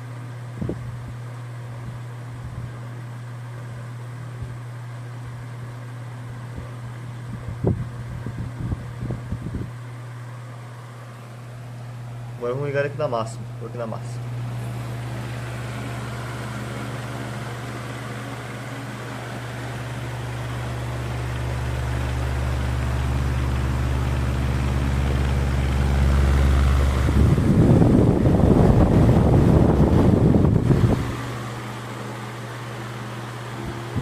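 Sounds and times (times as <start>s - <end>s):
fan motor hum with air rush: 0.0s - 34.0s
wind blasting microphone: 7.3s - 9.8s, 25.4s - 31.6s.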